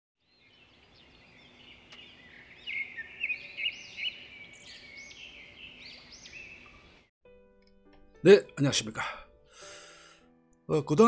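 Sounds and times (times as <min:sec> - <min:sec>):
birds singing and chirping: 0:00.2 - 0:07.1.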